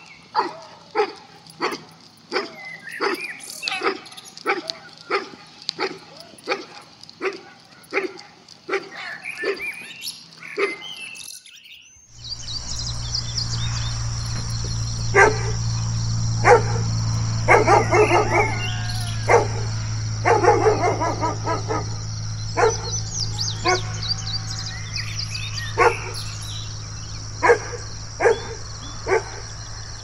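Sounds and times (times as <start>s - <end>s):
birds chirping: 0.0s - 30.0s
dog barking: 0.3s - 11.0s, 14.4s - 29.6s
steady low hum: 12.1s - 30.0s.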